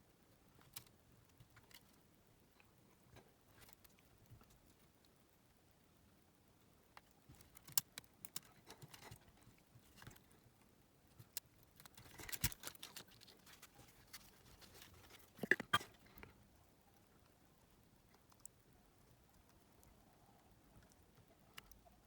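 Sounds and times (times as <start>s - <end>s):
clicks of plastic parts handled: 11.8s - 15.8s.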